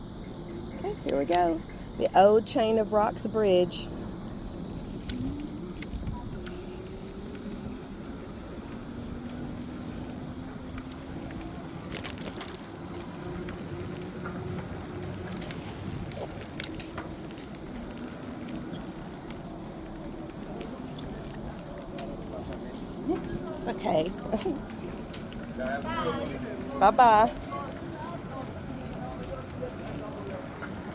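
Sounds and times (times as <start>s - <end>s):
wind on microphone: 4.9s - 7.5s.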